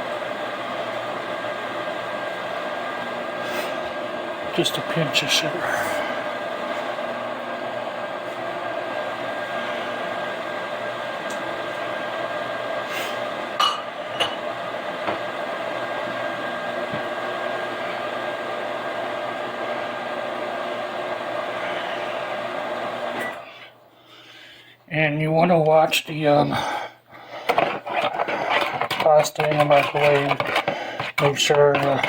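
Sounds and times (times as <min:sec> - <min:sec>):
microwave oven humming: 0:00.0 - 0:32.0
utensil clinking against dish: 0:27.5 - 0:32.0.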